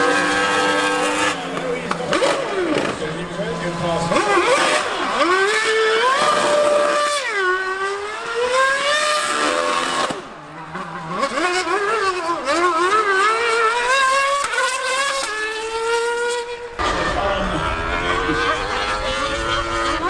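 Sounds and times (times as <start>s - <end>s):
racing engine at full throttle: 0.0s - 20.0s.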